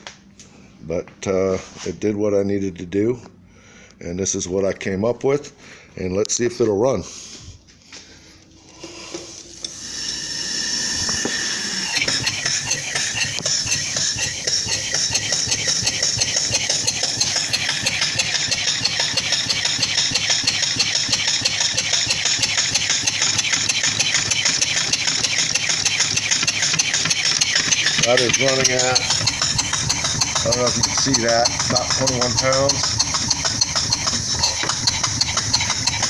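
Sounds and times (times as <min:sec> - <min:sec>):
steam engine exhaust puffs: 0:07.0 - 0:36.0
steam hiss: 0:08.8 - 0:20.2
valve-gear clatter: 0:08.9 - 0:36.0.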